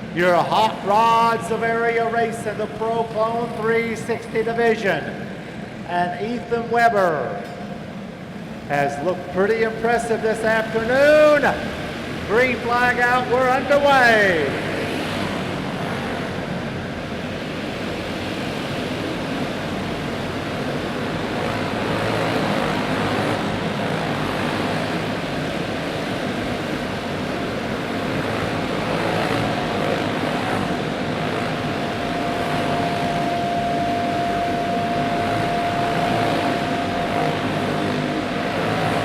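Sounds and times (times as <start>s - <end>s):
racing kart engines: 7.7s - 39.0s
single engine high note: 20.0s - 39.0s.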